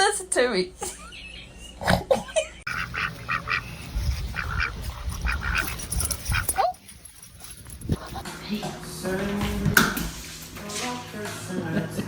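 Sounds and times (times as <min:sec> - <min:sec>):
ducks quacking: 0:02.7 - 0:06.6.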